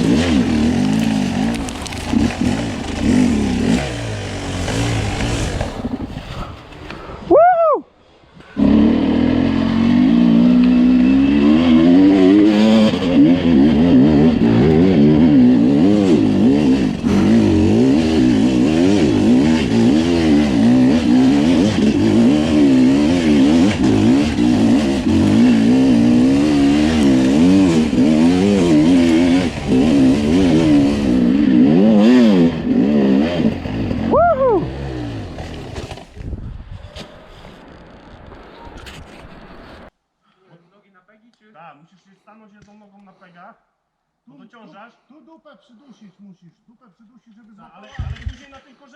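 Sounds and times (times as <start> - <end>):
motorcycle engine revving: 0.0 - 6.3, 8.6 - 36.2.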